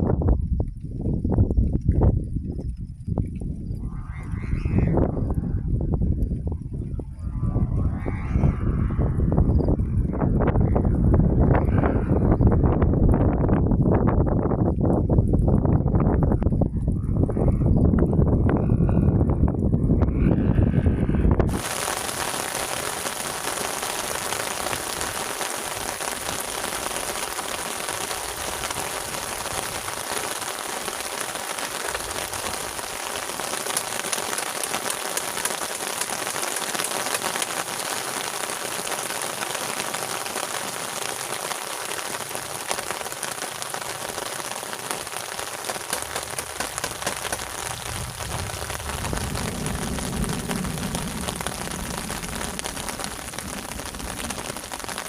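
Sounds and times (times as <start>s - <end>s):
low rumble: 0.0s - 22.4s, 46.0s - 55.0s
heavy rain falling: 21.5s - 55.0s.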